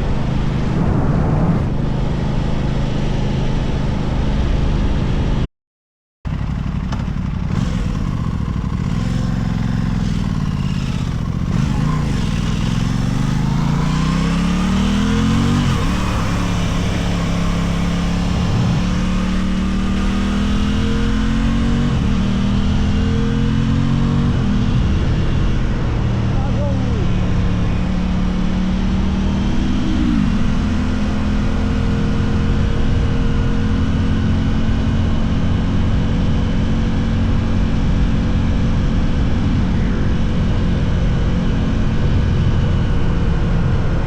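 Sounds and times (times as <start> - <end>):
wind rush: 0.0 - 2.8
motorcycle engine revving: 6.3 - 44.0.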